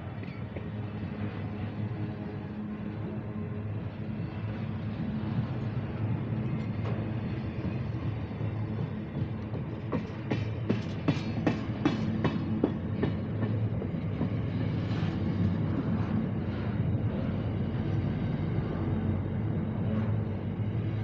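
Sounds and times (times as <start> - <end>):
low diesel engine drone: 13.3 - 21.0.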